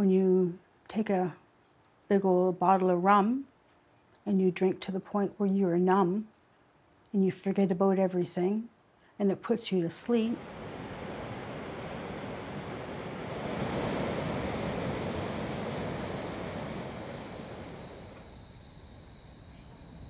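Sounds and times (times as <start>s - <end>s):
water rushing over rocks: 10.4s - 18.1s.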